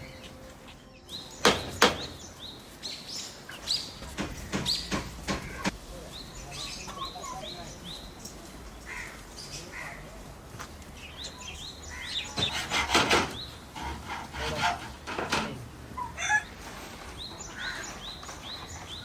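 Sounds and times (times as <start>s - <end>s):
small birds chirping: 0.0s - 12.7s, 17.0s - 19.0s.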